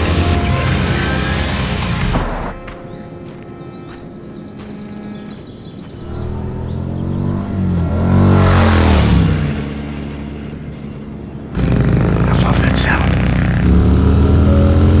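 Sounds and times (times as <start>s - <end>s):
loud steady engine: 0.0s - 2.6s, 6.0s - 15.0s
motorcycle passing by: 0.0s - 2.6s, 5.8s - 15.0s.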